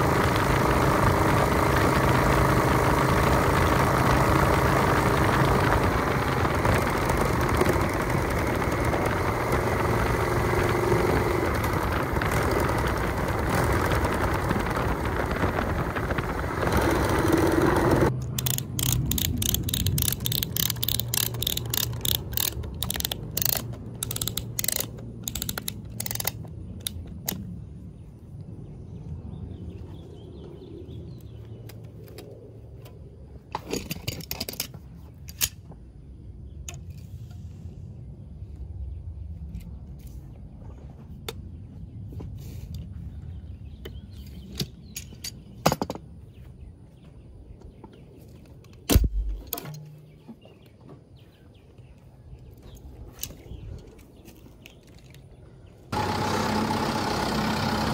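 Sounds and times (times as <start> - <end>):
engine humming: 0.0 - 33.7, 46.2 - 57.9
sharp clicks and ticks: 0.1 - 27.5.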